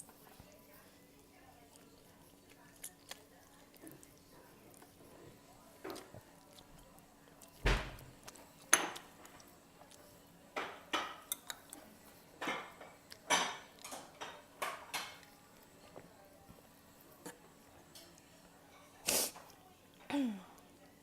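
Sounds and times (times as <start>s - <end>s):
utensils clinking against bowl: 10.6s - 11.8s, 12.4s - 15.9s.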